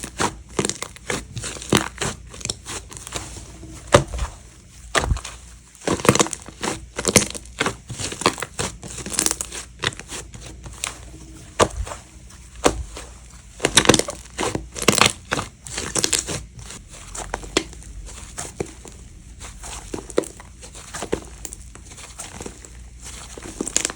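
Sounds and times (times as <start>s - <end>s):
slime crackling and popping: 0.0s - 3.2s, 4.9s - 10.1s, 12.6s - 18.9s, 19.7s - 23.9s.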